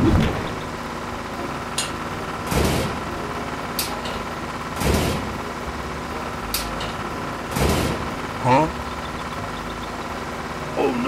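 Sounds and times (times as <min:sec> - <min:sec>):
cartoon engine running: 0:00.0 - 0:03.8, 0:07.0 - 0:11.0.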